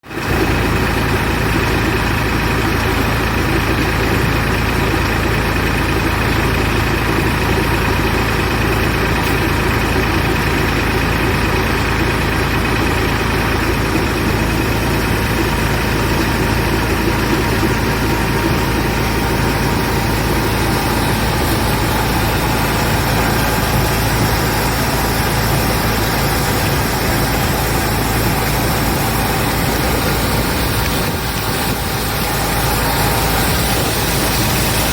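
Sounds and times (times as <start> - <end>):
washing machine drone: 0.0 - 34.9
low hum: 7.5 - 34.9.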